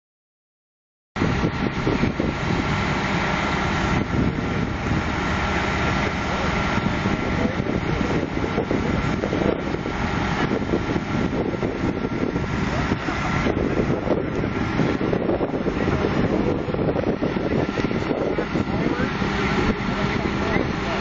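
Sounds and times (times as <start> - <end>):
heavy vehicle engines running: 1.2 - 21.0.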